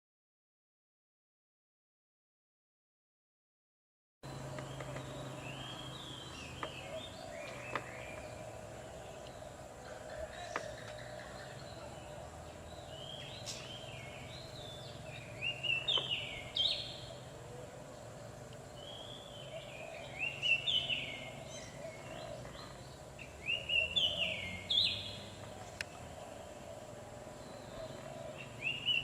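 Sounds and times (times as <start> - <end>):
faint steady hum: 4.2 - 29.0
bird whistling song: 12.8 - 17.1, 18.8 - 25.3, 27.4 - 29.0.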